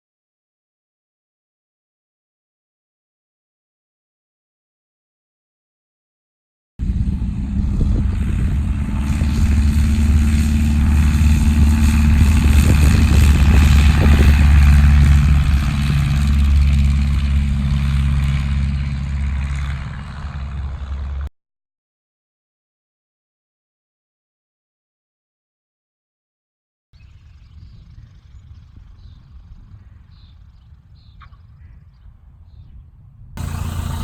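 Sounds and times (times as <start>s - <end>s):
light aircraft engine and propeller: 6.8s - 21.3s, 27.0s - 32.0s, 33.4s - 34.0s.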